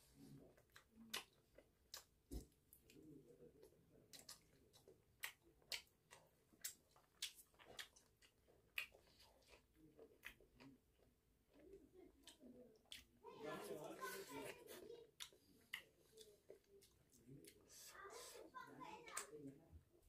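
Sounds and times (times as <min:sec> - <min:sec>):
chewing food close up: 0:00.2 - 0:19.5
wet mouth clicks and smacks: 0:04.1 - 0:09.2.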